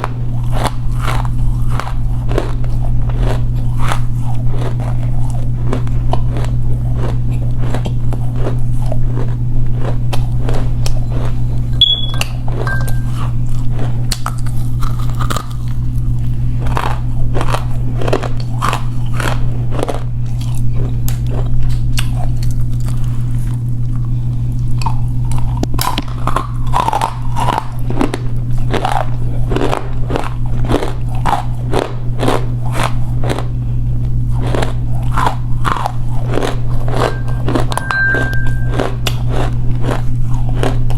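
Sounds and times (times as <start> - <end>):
chewing with dry crunches: 0.0 - 40.9
steady low hum: 0.0 - 40.9.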